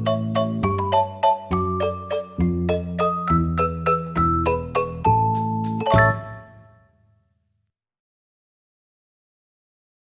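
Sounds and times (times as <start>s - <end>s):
light keyboard melody: 0.0s - 7.1s.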